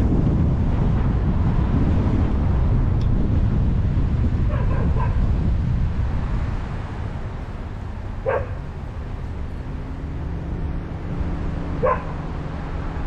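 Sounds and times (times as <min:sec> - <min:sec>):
car driving rumble: 0:00.0 - 0:13.0
dog barking: 0:04.5 - 0:05.2, 0:08.2 - 0:08.7, 0:11.8 - 0:12.2.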